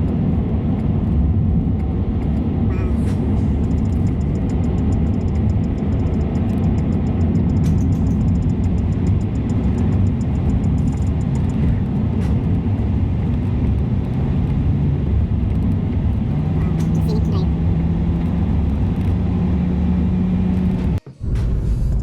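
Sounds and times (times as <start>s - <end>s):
car road and engine rumble: 0.0s - 22.0s
faint fast ticking: 1.3s - 13.8s.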